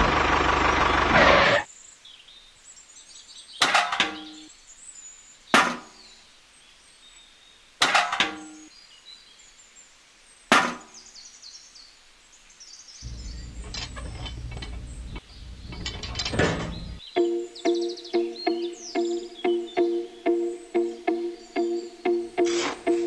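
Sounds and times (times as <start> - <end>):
tin pails clanking: 13.1 - 17.0.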